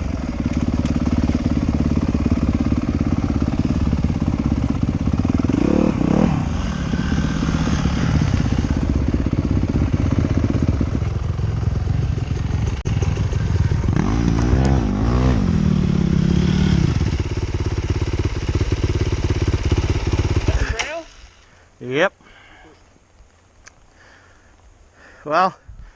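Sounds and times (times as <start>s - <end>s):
motorcycle engine revving: 0.0s - 21.4s.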